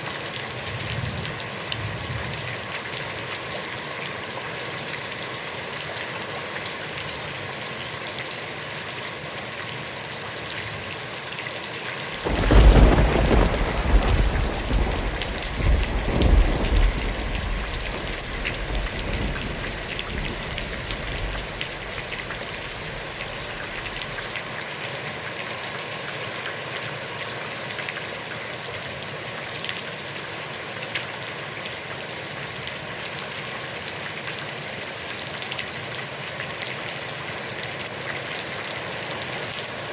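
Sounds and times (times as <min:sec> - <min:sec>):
heavy rain on a pond: 0:00.0 - 0:39.9
thunder rumbling: 0:12.1 - 0:24.5.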